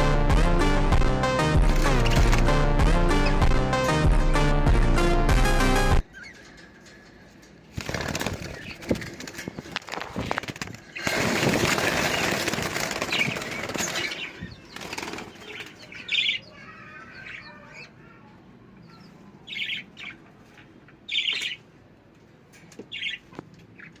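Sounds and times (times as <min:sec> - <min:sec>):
birds flapping wings: 0:01.7 - 0:02.6, 0:07.7 - 0:15.8.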